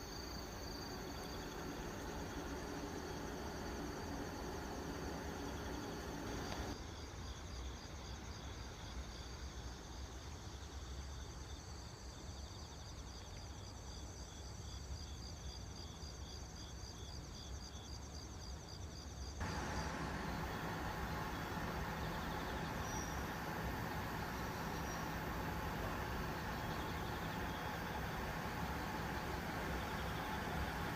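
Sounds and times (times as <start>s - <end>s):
low steady rumble: 0.0s - 6.8s, 19.4s - 30.9s
crickets chirping: 0.0s - 30.9s
loud mechanical hum: 0.9s - 6.7s, 19.4s - 30.9s.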